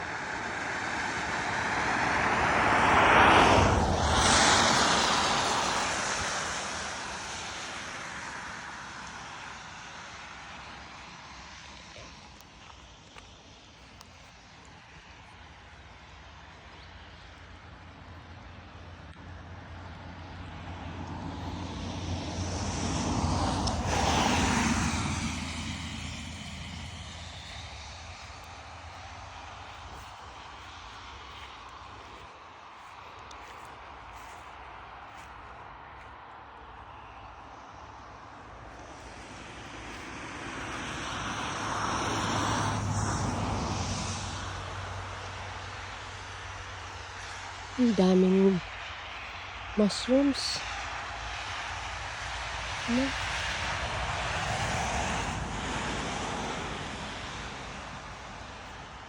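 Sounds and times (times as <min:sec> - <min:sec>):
engine drone: 0:00.0 - 0:34.4.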